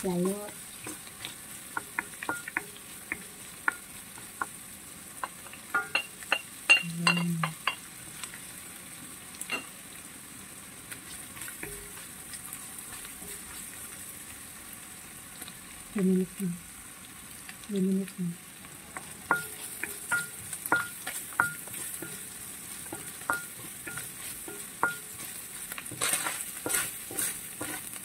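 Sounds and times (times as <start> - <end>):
spatula clicking and scraping pan: 0.0 - 8.5, 10.9 - 14.0, 18.9 - 28.0
meat sizzling in a wok: 0.0 - 28.0.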